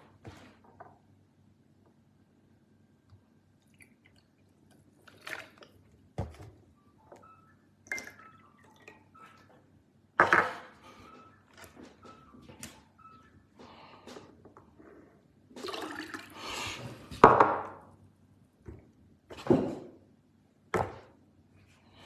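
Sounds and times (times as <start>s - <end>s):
water splashing and dripping: 3.6s - 5.8s.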